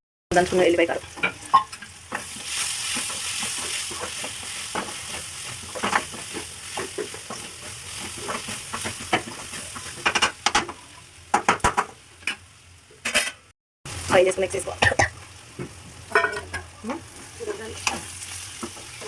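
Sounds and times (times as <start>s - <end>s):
food sizzling in hot oil: 0.3s - 13.2s, 13.9s - 19.0s
spoon scraping a pan: 1.2s - 10.7s, 13.0s - 13.4s.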